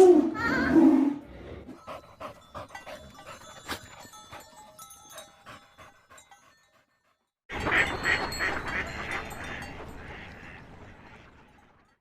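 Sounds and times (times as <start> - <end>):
dog panting: 1.7 - 7.3.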